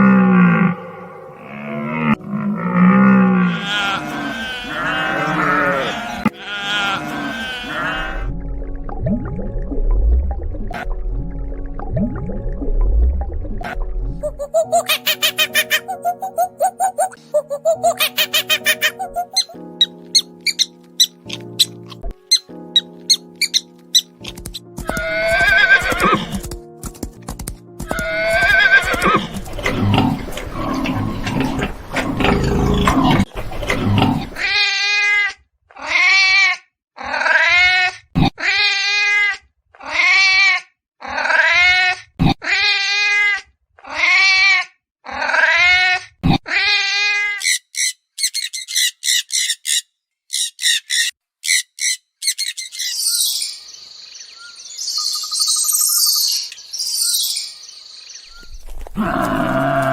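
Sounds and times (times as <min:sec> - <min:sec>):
animal calls: 0:00.8 - 0:08.2, 0:14.2 - 0:24.1, 0:58.3 - 0:59.9.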